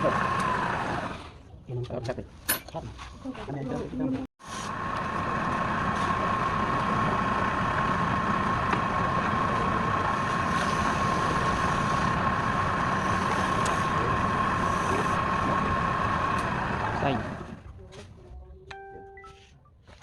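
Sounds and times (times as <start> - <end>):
lathe motor whining: 0.0 - 1.3, 4.6 - 17.6.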